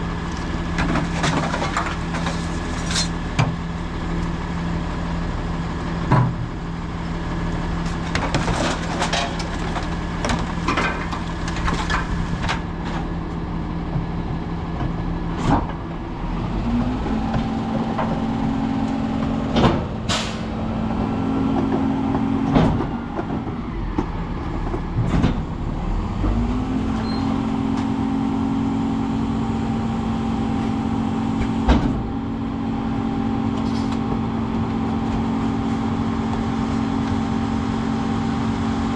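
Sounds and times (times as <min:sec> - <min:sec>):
trash clanking into hopper: 0:00.7 - 0:03.2, 0:07.9 - 0:13.1, 0:19.2 - 0:20.8
garbage truck engine idling: 0:12.6 - 0:37.7.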